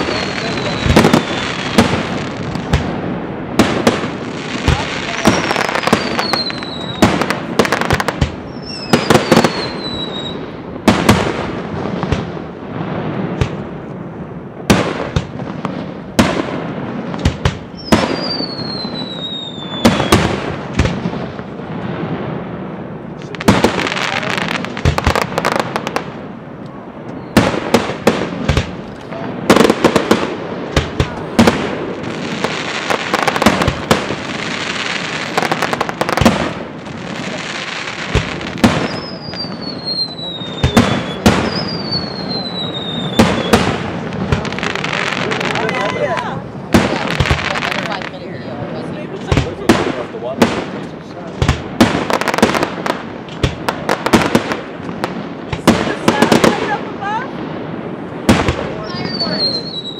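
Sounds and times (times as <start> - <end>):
falling fireworks whistles: 0.0 - 3.0, 3.6 - 12.3, 16.8 - 22.2, 27.0 - 48.6, 51.4 - 59.9
dense fireworks crackling: 0.0 - 59.9
fireworks bursting with bangs: 0.0 - 59.9.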